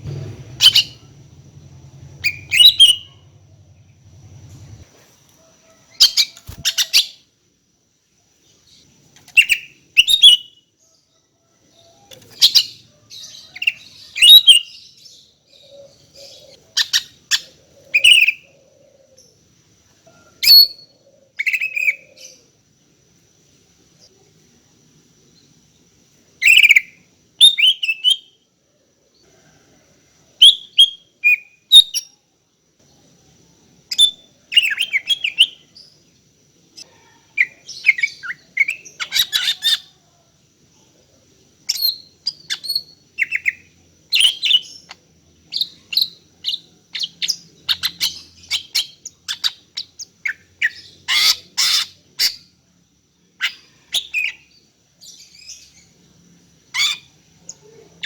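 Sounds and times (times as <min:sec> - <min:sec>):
bird whistled calls and chips: 0:02.2 - 0:03.1.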